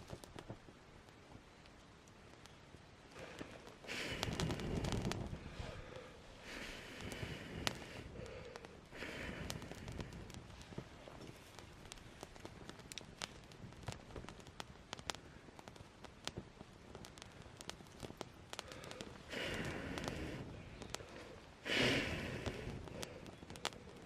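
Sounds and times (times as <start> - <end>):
campfire crackling and popping: 0.0 - 24.0
rushes of noise: 3.2 - 11.4.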